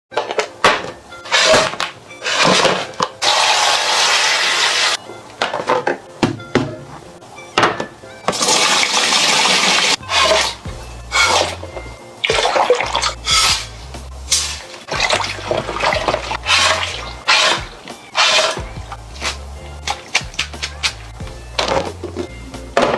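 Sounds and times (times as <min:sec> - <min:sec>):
kitchen knocks and clatter: 0:07.6 - 0:08.4
water running: 0:08.3 - 0:22.7
background music beat: 0:10.0 - 0:22.9.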